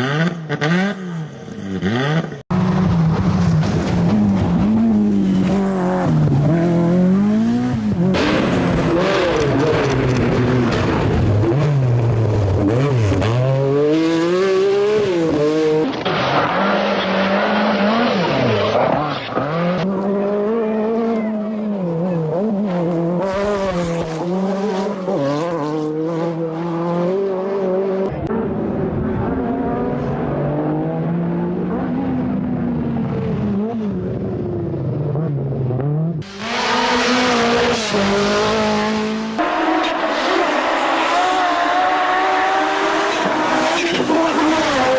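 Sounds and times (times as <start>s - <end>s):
rally car engines revving: 0.0s - 44.9s.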